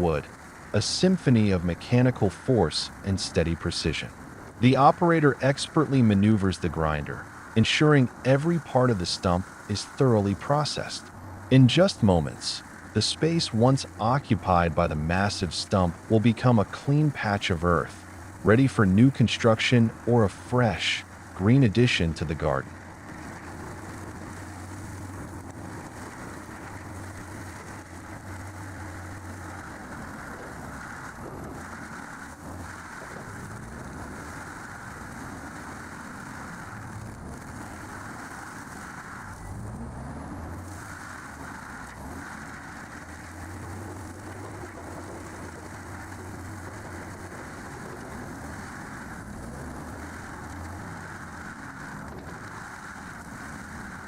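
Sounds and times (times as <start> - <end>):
stump grinder engine under load: 20.5 - 54.0.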